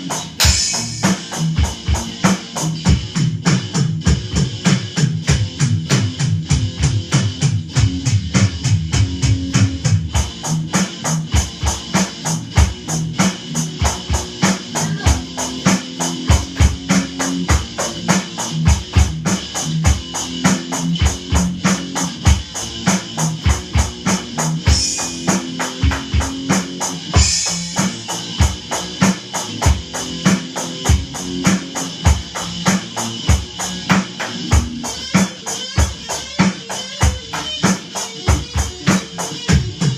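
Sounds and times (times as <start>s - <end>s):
drum kit fast beat: 0.0s - 39.9s
electric guitar: 0.0s - 39.9s
cymbal crashes: 0.4s - 1.5s.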